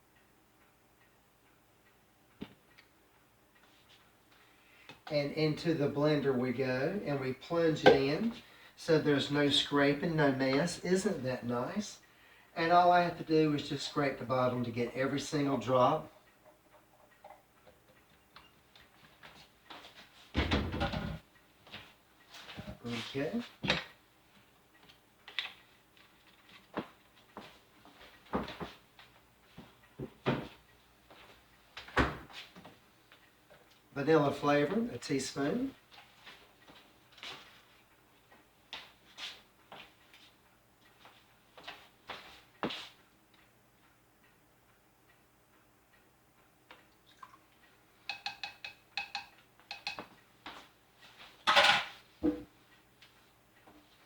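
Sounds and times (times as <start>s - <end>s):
utensils knocking on countertop: 48.1s - 50.1s.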